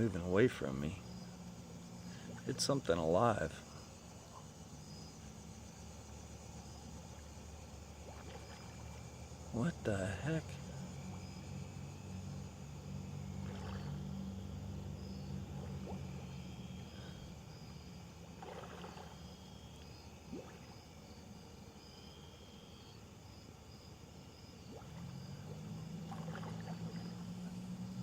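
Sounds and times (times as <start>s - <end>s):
water rushing splashes: 7.9s - 11.4s, 13.3s - 16.3s, 18.3s - 19.3s, 24.7s - 27.6s.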